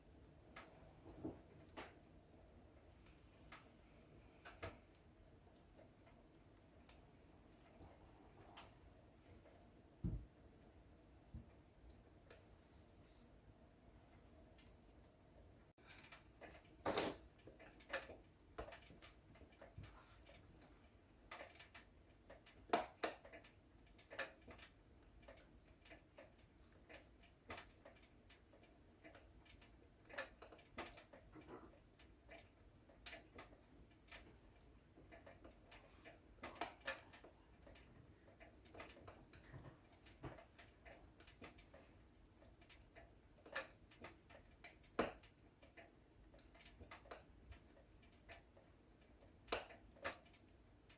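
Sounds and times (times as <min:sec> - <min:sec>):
faint steady hiss: 0:00.0 - 0:50.9
wood fire crackling and popping: 0:15.8 - 0:50.9.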